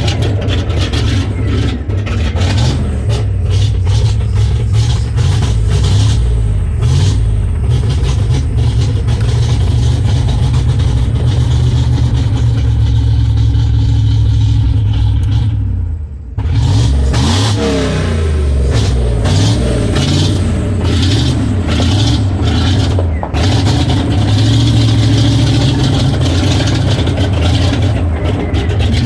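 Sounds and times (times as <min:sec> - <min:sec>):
engine rumbling and revving: 0:00.0 - 0:29.0.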